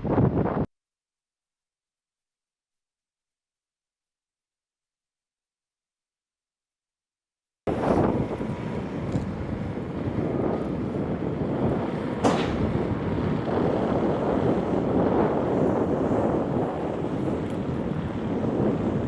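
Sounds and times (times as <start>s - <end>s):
wind buffeting microphone: 0.0s - 0.7s, 7.7s - 19.0s.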